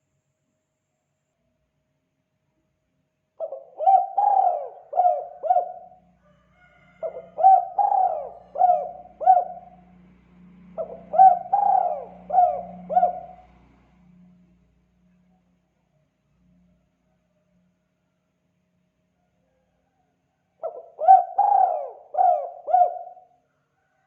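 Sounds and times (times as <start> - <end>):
dove cooing: 3.4 - 6.1, 7.0 - 9.9, 10.7 - 13.6, 20.6 - 23.4.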